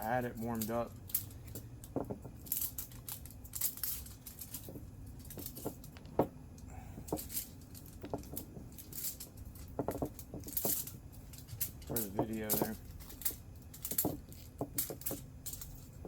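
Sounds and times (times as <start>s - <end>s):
faint low hum: 0.0s - 16.0s
small parts being handled: 0.0s - 16.0s.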